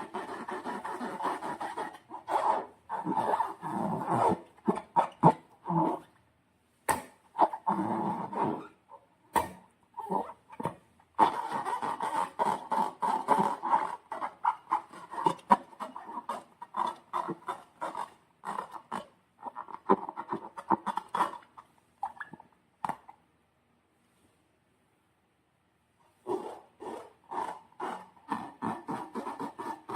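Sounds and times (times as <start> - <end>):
slime squelching and squeaking: 11.2 - 22.4, 26.2 - 29.9.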